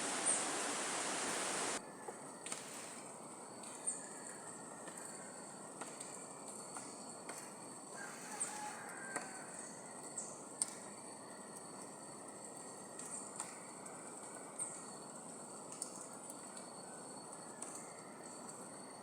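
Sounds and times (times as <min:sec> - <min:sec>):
bird chirps: 0:00.0 - 0:01.8
faint whistled calls: 0:00.0 - 0:01.8
high-pitched insect drone: 0:00.0 - 0:01.8
low rush: 0:00.0 - 0:01.8.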